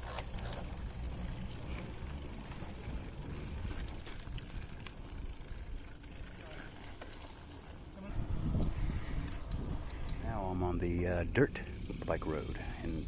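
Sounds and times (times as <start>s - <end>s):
tyres rumbling on dirt: 0.0s - 13.0s
wind on microphone: 8.0s - 10.4s.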